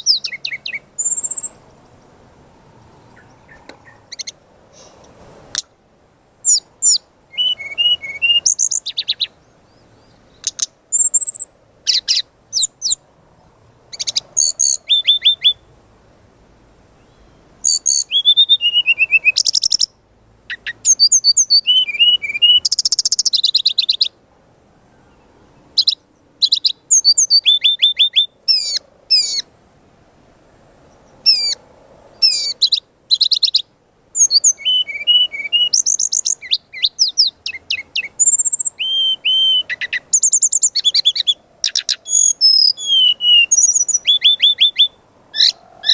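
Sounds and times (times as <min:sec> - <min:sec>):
bird singing sharp chirps: 0:00.0 - 0:02.1, 0:06.4 - 0:13.0, 0:13.9 - 0:15.7, 0:17.0 - 0:24.2, 0:25.0 - 0:29.4, 0:30.9 - 0:31.6, 0:32.2 - 0:45.9.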